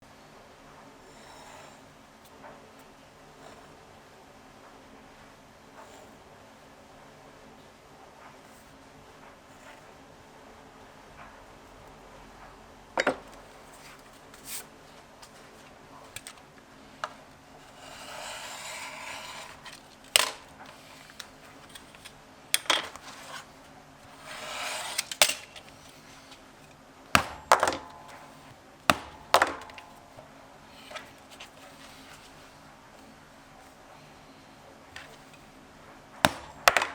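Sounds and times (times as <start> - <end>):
tools tapping on hard surface: 13.0 - 13.4, 36.3 - 36.9.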